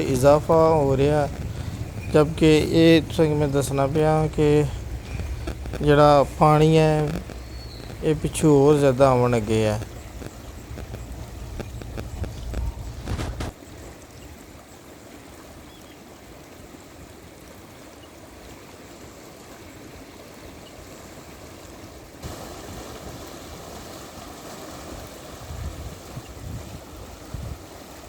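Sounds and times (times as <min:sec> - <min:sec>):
wind buffeting microphone: 0:00.0 - 0:13.6, 0:24.9 - 0:27.8
floodwater rushing down stream: 0:00.0 - 0:28.0.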